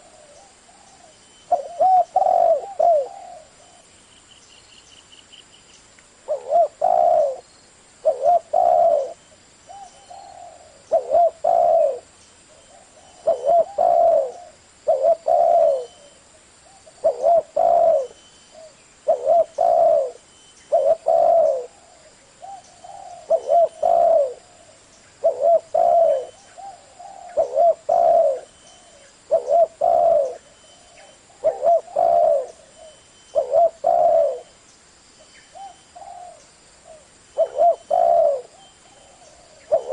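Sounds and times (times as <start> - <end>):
dove cooing: 0.0 - 3.9, 6.2 - 34.6, 35.5 - 39.9.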